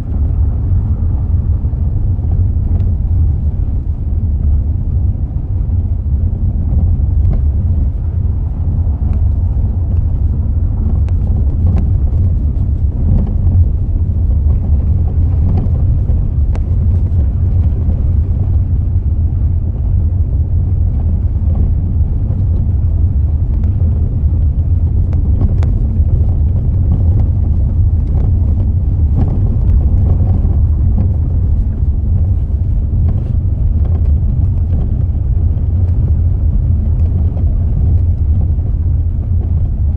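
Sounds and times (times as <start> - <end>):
car engine running: 0.0 - 39.9
suspension knocking: 21.0 - 39.9.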